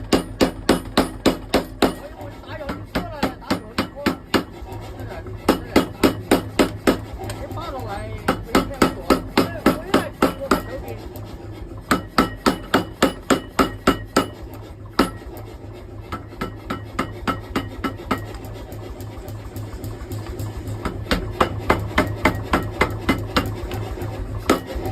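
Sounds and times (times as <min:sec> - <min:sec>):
hammer striking hot steel: 0:00.0 - 0:04.7, 0:05.4 - 0:10.9, 0:11.8 - 0:23.8, 0:24.4 - 0:24.9.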